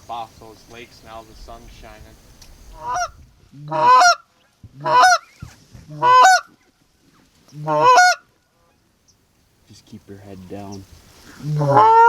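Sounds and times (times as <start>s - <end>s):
goose call honks: 2.8s - 5.3s, 5.9s - 6.5s, 7.5s - 8.2s, 11.4s - 12.0s.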